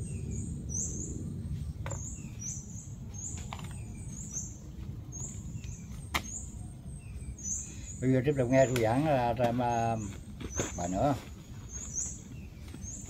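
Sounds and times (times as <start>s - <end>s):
low background rumble: 0.0s - 8.5s
small bird chirping: 0.0s - 13.0s.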